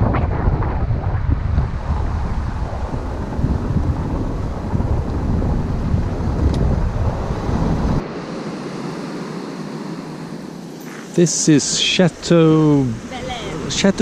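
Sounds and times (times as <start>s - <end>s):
steady wind hiss: 0.0s - 14.0s
wind buffeting microphone: 0.0s - 14.0s.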